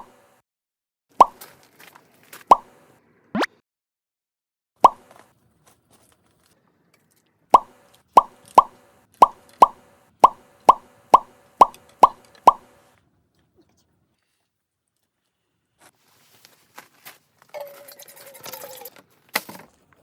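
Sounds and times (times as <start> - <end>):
cartoon plop pops: 1.2 - 1.4, 2.5 - 2.7, 3.4 - 3.6, 4.8 - 5.1, 7.5 - 12.7.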